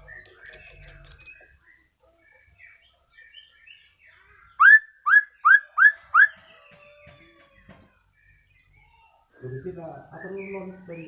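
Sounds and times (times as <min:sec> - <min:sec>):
bird whistled upslurred notes: 0:04.6 - 0:06.3.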